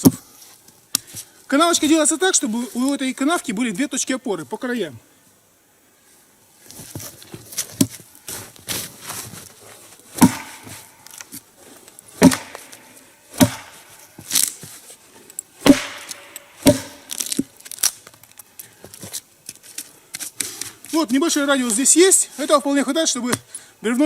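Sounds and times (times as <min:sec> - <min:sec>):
axe chopping log: 0:00.0 - 0:00.2, 0:10.2 - 0:10.9, 0:12.2 - 0:14.5, 0:15.6 - 0:17.6.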